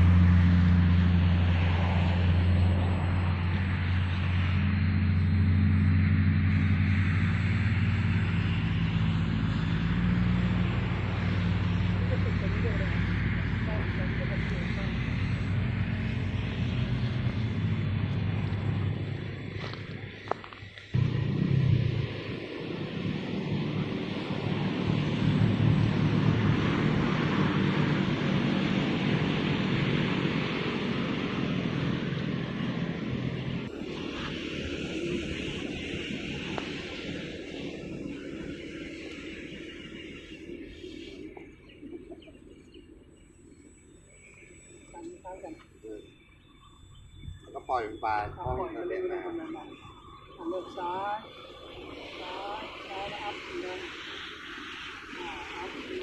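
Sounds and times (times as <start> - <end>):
engine humming: 0.0 - 56.0
hiss: 33.7 - 41.6, 49.7 - 56.0
wind buffeting microphone: 46.1 - 56.0.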